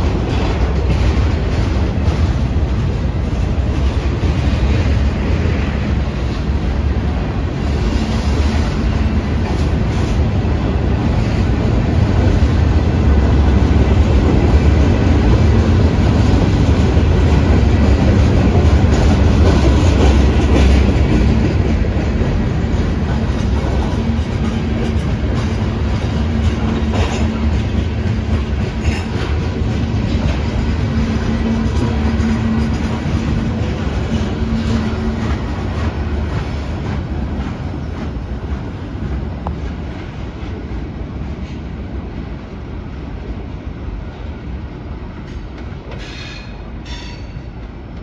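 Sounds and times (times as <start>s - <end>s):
freight train wheels rumbling: 0.0s - 48.0s.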